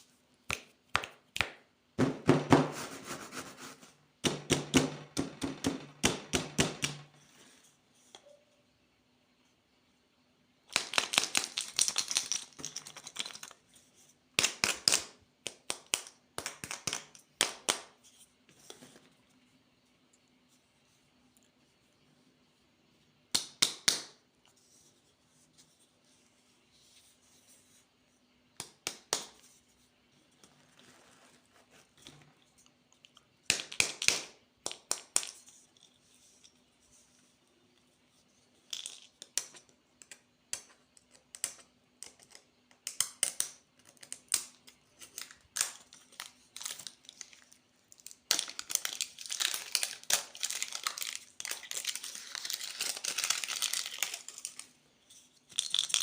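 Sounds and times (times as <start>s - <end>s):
faint steady hum: 0.0s - 56.0s
plastic wrappers crinkling: 45.0s - 54.8s, 55.5s - 56.0s.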